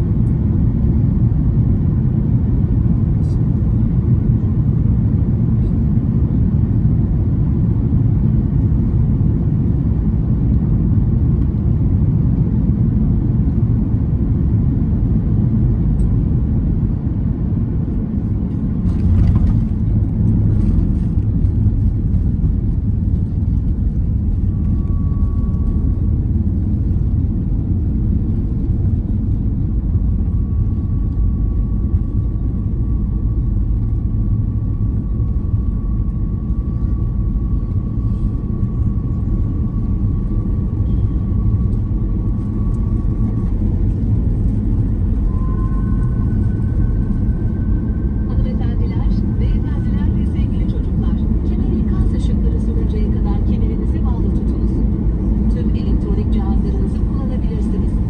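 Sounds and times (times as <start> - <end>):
airliner engines rumbling in cabin: 0.0 - 58.0
faint high whine: 24.2 - 26.8, 30.0 - 58.0.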